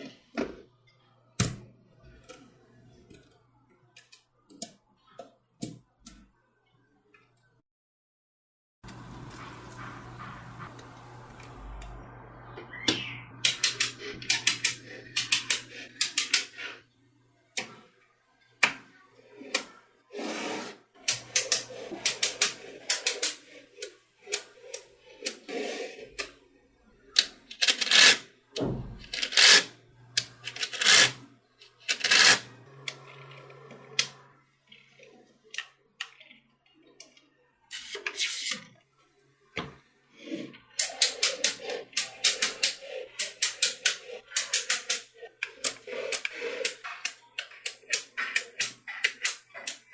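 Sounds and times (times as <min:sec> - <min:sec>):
magnetic balls clicking together: 0:40.8 - 0:49.9.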